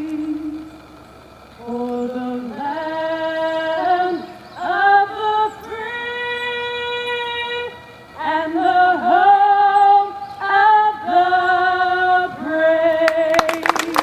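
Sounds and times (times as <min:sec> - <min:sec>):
crowd clapping and cheering: 0:13.0 - 0:14.0.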